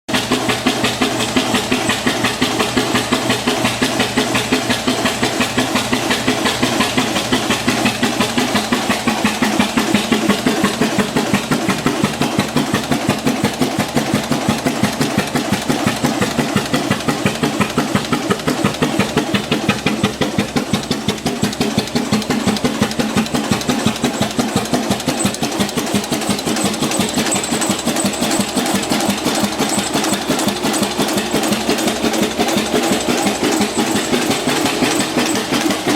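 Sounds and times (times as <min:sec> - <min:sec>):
tractor engine chuffing: 0:00.1 - 0:35.9.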